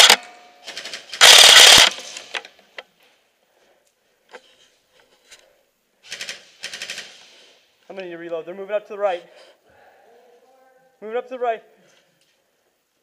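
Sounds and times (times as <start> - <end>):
airsoft rifle full-auto burst: 0.0 - 2.4, 6.0 - 7.3.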